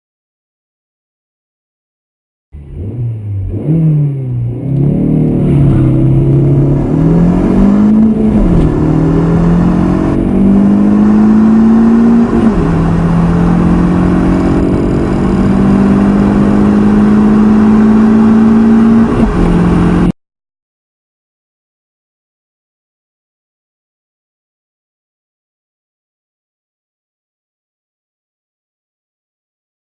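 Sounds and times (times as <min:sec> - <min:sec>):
car engine accelerating through gears: 0:02.6 - 0:20.2.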